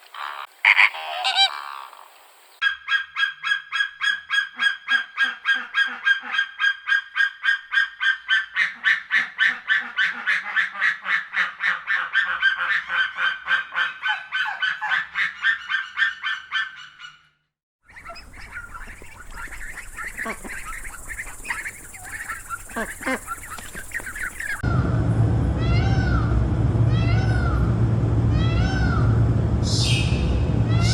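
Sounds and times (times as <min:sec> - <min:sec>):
geese honking: 0:00.0 - 0:02.0, 0:17.9 - 0:24.8, 0:28.4 - 0:30.9
faint animal calls: 0:00.0 - 0:17.3, 0:17.9 - 0:24.7.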